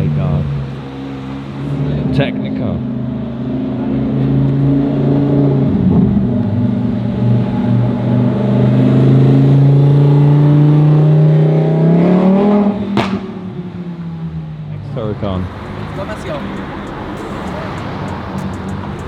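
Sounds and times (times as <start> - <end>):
sports car engine revving: 0.1 - 14.2, 15.4 - 19.0.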